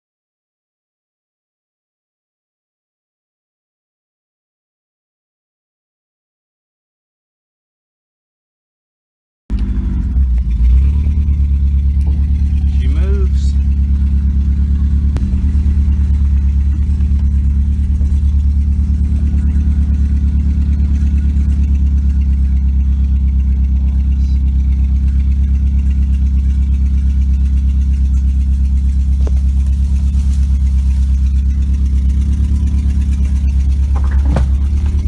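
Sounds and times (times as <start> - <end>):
car engine pulsing drone: 9.5 - 35.0.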